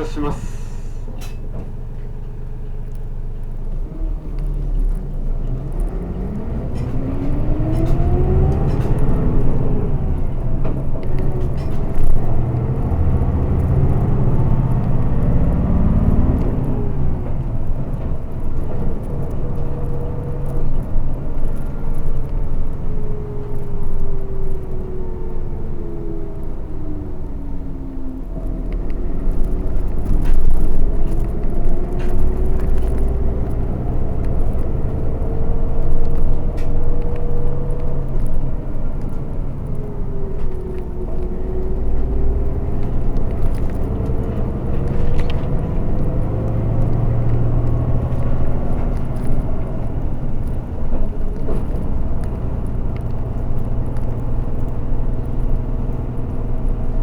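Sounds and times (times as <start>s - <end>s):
bus engine: 0.0s - 57.0s
road rumble: 0.0s - 57.0s.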